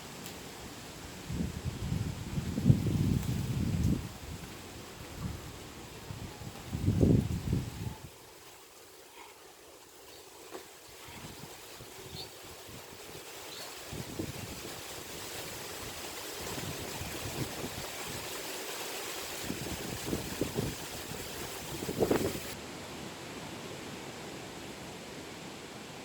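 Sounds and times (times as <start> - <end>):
wind buffeting microphone: 1.3 - 8.1, 13.9 - 18.4, 19.4 - 22.6.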